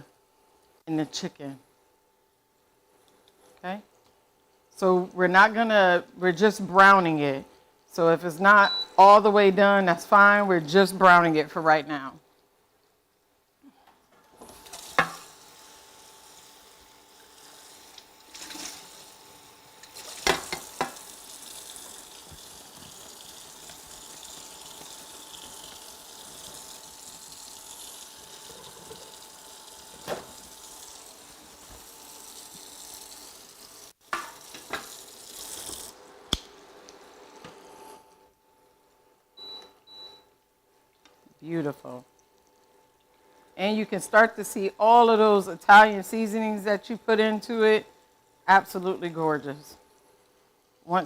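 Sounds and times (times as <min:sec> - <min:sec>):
chicken sizzling in oil: 0:14.5 - 0:36.0
utensils knocking on pan: 0:14.9 - 0:15.3, 0:20.2 - 0:21.0, 0:34.1 - 0:34.9.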